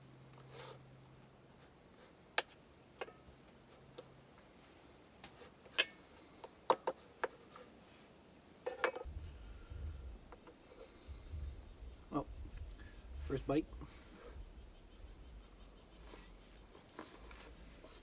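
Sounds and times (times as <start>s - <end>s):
low rumble: 9.0s - 18.0s.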